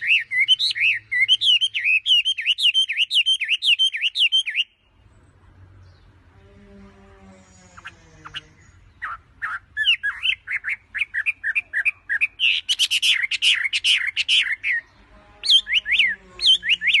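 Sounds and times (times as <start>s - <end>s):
small birds chirping: 0.0s - 17.0s
bird calls sweeping in pitch: 7.2s - 11.6s.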